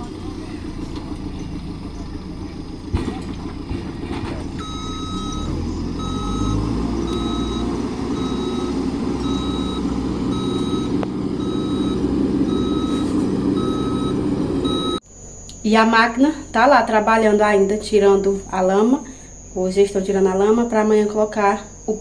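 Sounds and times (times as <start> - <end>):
diesel engine rumble: 0.0 - 15.0
backup alarm beeping: 4.5 - 22.0.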